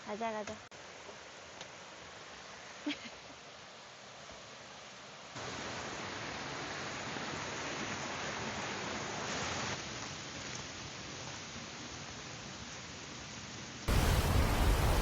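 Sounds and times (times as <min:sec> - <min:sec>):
rushing stream water: 0:00.0 - 0:11.0, 0:13.9 - 0:15.0
heavy rain pouring: 0:00.8 - 0:15.0.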